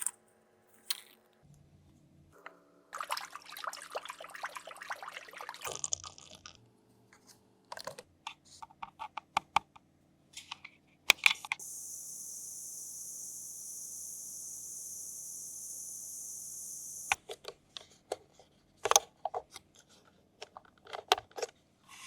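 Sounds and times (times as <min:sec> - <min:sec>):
steady high hiss: 0:11.6 - 0:17.2.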